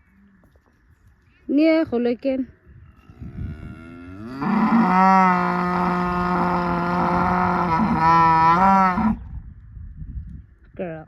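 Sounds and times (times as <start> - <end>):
cow mooing: 3.1 - 9.2.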